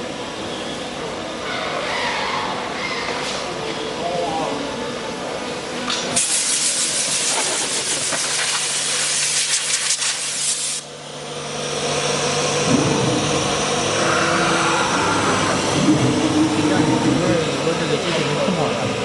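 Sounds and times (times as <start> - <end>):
loud steady hiss: 6.2 - 10.9
machine running: 10.8 - 19.0.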